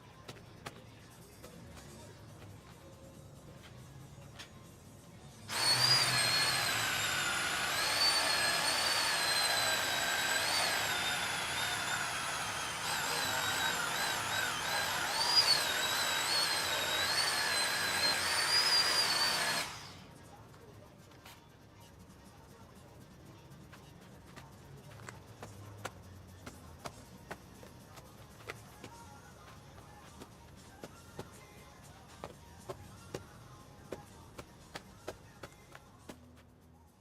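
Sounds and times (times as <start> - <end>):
electric power tool motor whining: 5.5 - 20.0.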